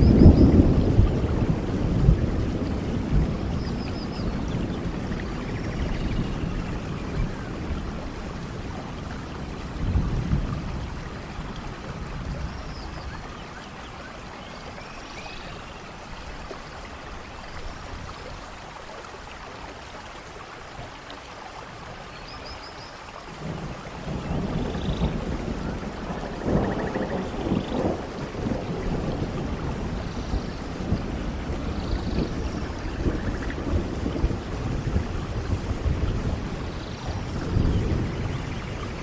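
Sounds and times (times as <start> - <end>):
thunder rumbling: 0.0 - 13.9, 23.3 - 39.0
heavy rain: 0.0 - 39.0.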